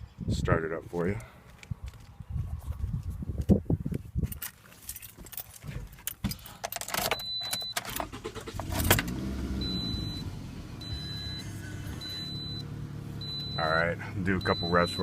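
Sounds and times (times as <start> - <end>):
keys rattling: 4.2 - 8.2
car engine cranking and idling: 6.8 - 15.0
dashboard warning chime beeping: 7.1 - 8.2, 9.6 - 15.0.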